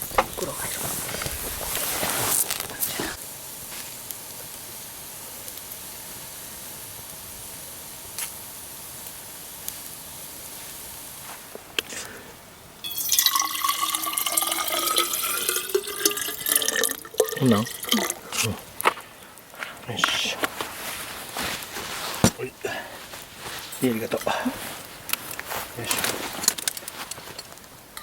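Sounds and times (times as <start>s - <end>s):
quiet steady hiss: 0.0s - 28.0s
liquid pouring into container: 12.8s - 18.5s.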